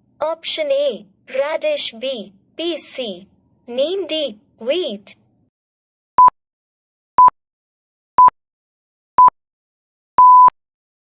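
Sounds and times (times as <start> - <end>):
electronic countdown beeps: 10.2 - 10.5.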